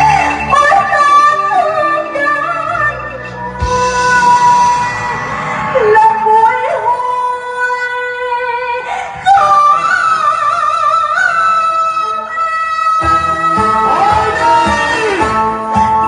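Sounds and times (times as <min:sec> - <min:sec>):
instrumental accompaniment: 0:00.0 - 0:07.6, 0:11.4 - 0:16.0
singer holding wavering notes: 0:00.0 - 0:16.0.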